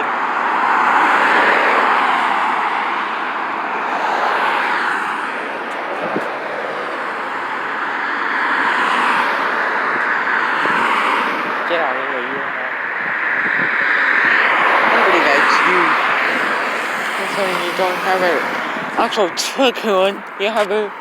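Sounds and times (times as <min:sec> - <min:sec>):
vehicles passing close by: 0:00.0 - 0:21.0.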